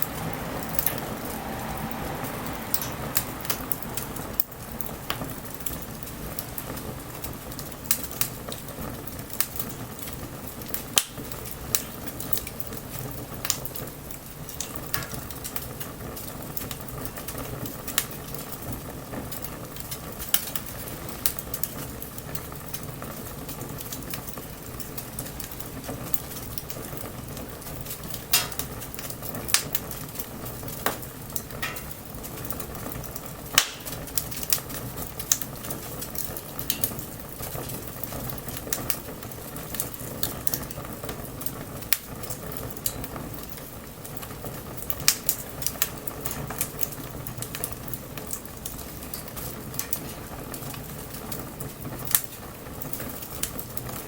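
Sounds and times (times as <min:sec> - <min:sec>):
wood bonfire crackling: 0:00.0 - 0:54.0.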